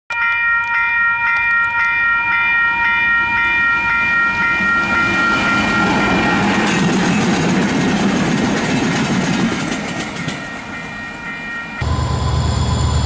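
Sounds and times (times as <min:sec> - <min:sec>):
level-crossing bell ringing: 0:00.1 - 0:07.4, 0:10.1 - 0:12.2
train rumble: 0:03.8 - 0:11.1, 0:11.7 - 0:13.0.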